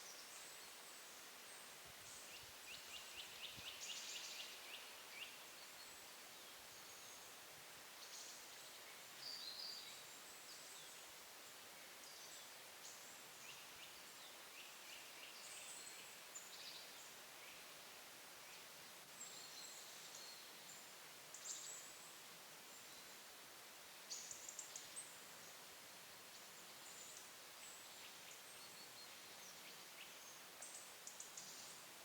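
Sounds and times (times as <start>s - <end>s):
steady background hiss: 0.0s - 32.0s
songbirds calling: 26.3s - 31.9s.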